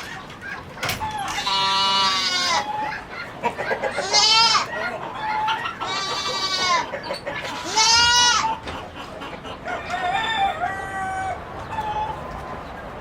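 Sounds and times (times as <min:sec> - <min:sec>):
farm animal wavering call: 0:01.0 - 0:06.9
rooster crowing: 0:09.6 - 0:12.2.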